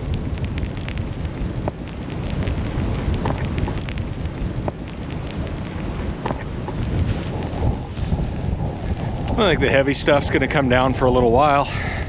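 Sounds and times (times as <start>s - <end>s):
small ticks: 0.0s - 9.4s
wind buffeting microphone: 0.0s - 12.0s.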